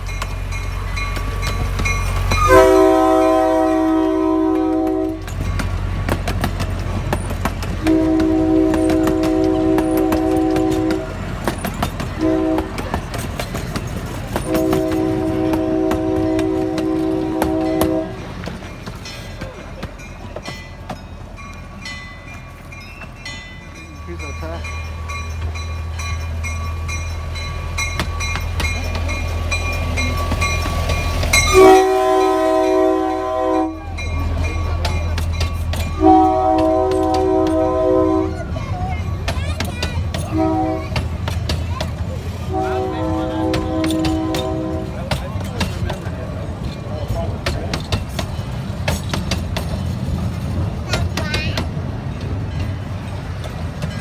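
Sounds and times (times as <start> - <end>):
moving train rumble: 0.0 - 54.0
wheels clicking over rail joints: 0.0 - 54.0
locomotive chime horn: 0.5 - 5.7, 7.8 - 11.4, 12.1 - 13.1, 14.4 - 18.5, 23.3 - 39.1, 40.2 - 41.2, 42.4 - 45.2
train whistle blasts: 2.3 - 5.3, 7.8 - 11.1, 12.2 - 12.8, 14.5 - 18.2, 31.2 - 33.9, 36.0 - 38.4, 40.3 - 40.8, 42.5 - 45.0.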